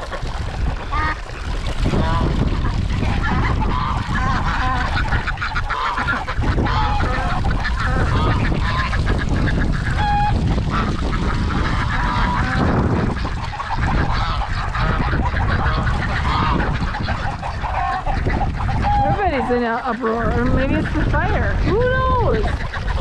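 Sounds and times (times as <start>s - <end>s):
geese honking: 0.0s - 23.0s
wind rumbling on microphone: 0.0s - 23.0s
duck calls: 0.8s - 23.0s.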